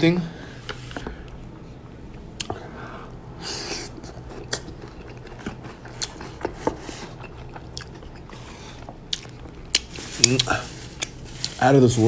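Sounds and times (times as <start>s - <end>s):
food packaging rustling: 8.4s - 12.0s.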